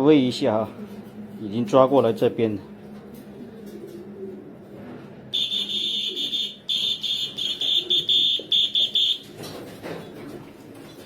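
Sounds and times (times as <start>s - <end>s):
high-pitched whistle blasts: 5.4s - 9.2s.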